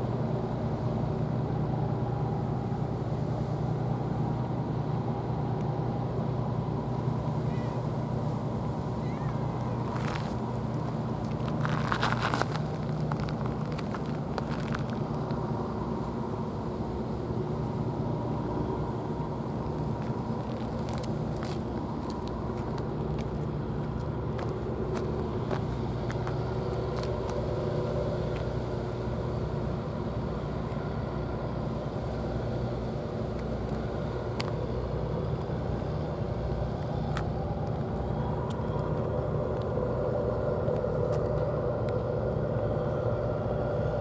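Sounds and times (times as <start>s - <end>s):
engine running: 0.0s - 44.0s.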